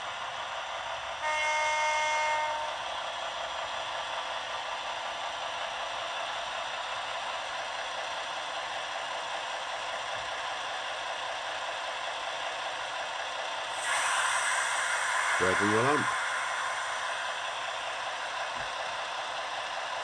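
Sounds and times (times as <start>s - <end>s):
hissing engine running sound: 0.2s - 20.0s
model train horn blast: 1.2s - 2.8s, 13.8s - 17.4s.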